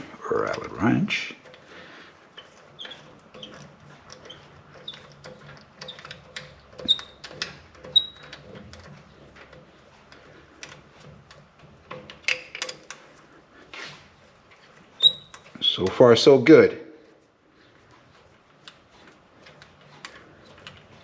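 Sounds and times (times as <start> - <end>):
metallic clicks of wrench and fittings: 2.4 - 13.3.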